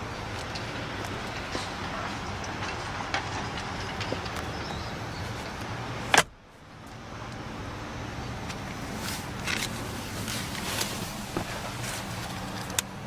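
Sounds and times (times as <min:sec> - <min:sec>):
steady background hum: 0:00.0 - 0:13.0
car door shutting: 0:06.1 - 0:06.4, 0:08.5 - 0:12.8.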